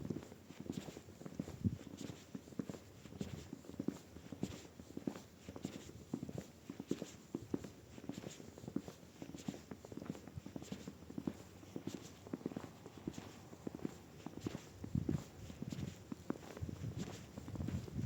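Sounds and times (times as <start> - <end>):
footsteps crunching in snow: 9.3 - 18.0.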